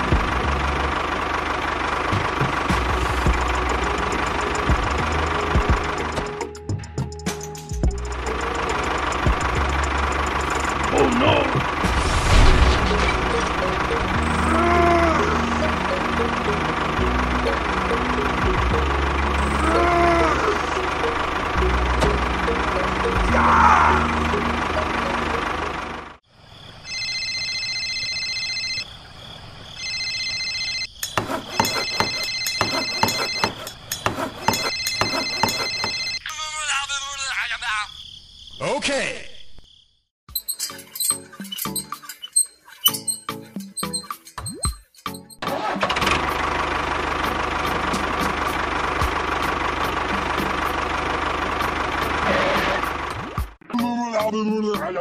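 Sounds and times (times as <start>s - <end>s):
engine running: 0.0s - 26.2s, 31.1s - 36.2s, 45.4s - 53.6s
background music: 2.7s - 26.1s
high electronic ringing tone: 26.8s - 28.9s, 29.8s - 30.9s, 31.6s - 33.6s, 34.4s - 36.2s
small engine knocking: 31.1s - 36.2s.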